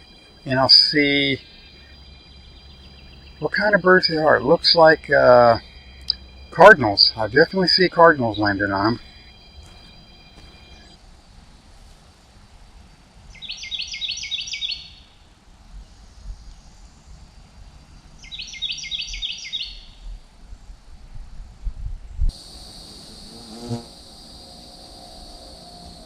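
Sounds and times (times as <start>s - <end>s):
cardinal singing whistled notes: 0.0s - 11.0s.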